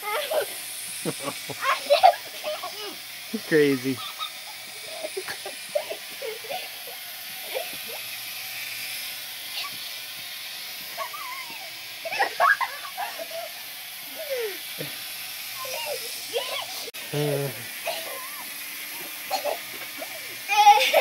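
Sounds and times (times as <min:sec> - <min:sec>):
steady hiss: 0:00.0 - 0:21.0
child vocalizing: 0:14.1 - 0:14.6, 0:15.6 - 0:18.4.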